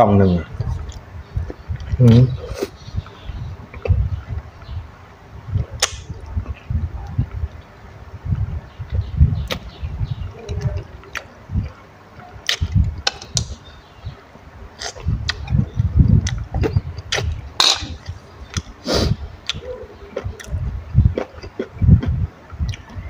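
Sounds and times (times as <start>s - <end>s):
chewing and wet mouth sounds: 0.6s - 4.8s, 8.3s - 13.4s, 14.8s - 18.8s, 19.4s - 23.0s.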